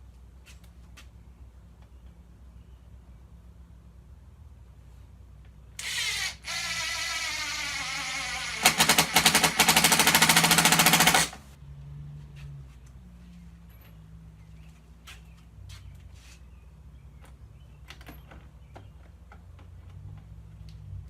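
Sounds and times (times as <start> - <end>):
impact driver driving screw: 5.8 - 11.4.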